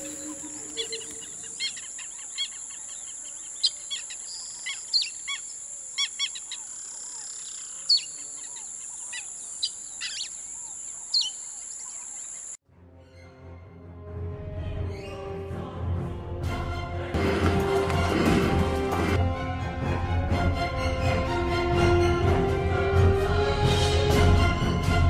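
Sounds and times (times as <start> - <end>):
birds chirping: 0.0 - 12.6
steady high-pitched hiss: 0.0 - 12.6.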